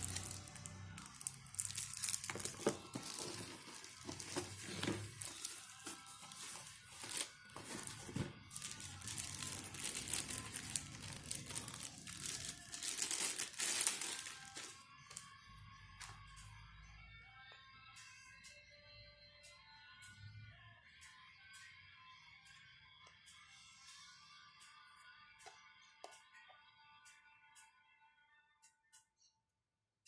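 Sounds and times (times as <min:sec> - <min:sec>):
packaging crinkling and rustling: 0:00.0 - 0:15.2.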